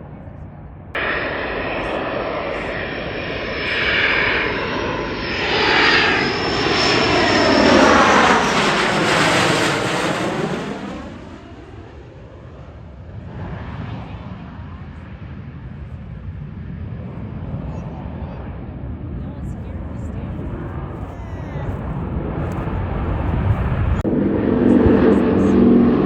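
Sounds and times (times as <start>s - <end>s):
steady high whine: 0.0s - 12.8s
aircraft engine passing low: 0.0s - 26.0s.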